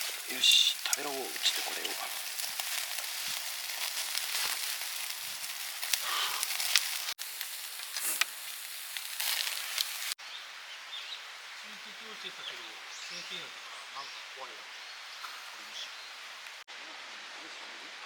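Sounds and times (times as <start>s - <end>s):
crackling pops: 0.0s - 10.2s
food frying and sizzling: 0.0s - 17.3s.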